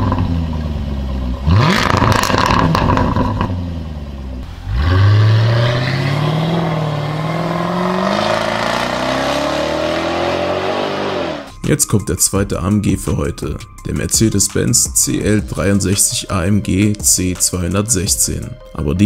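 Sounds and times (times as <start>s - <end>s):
car accelerating hard: 0.0s - 11.5s
car engine revving: 0.0s - 11.6s
exhaust crackling: 0.0s - 11.9s.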